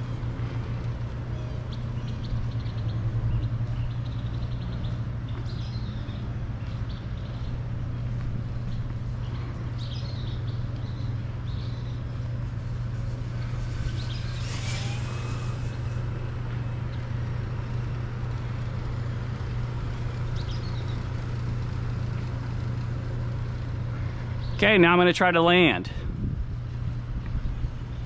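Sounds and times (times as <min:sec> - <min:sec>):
birds chirping: 0:00.0 - 0:25.8
steady low hum: 0:00.0 - 0:28.0
model plane motor whine: 0:09.4 - 0:24.6.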